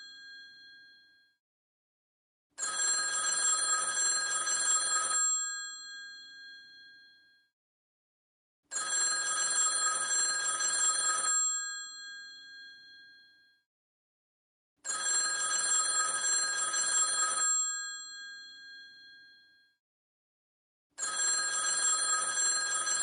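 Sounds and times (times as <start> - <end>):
telephone bell ringing: 0.0 - 1.2, 2.6 - 7.3, 8.7 - 13.4, 14.8 - 19.5, 21.0 - 23.0.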